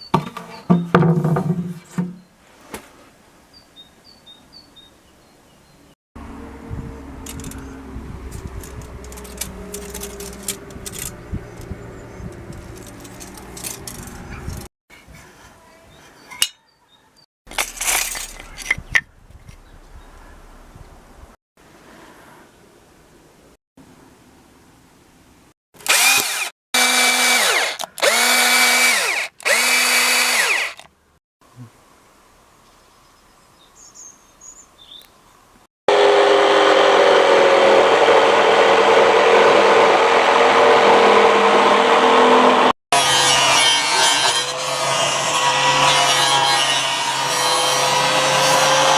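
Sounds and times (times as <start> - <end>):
hard objects clicking and clinking: 8.5 - 11.2
electric drill whining: 25.8 - 30.9.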